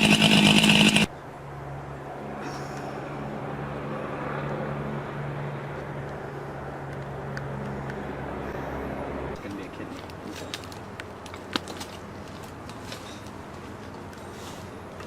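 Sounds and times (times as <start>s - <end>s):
heavy machinery engine humming: 0.0s - 1.1s.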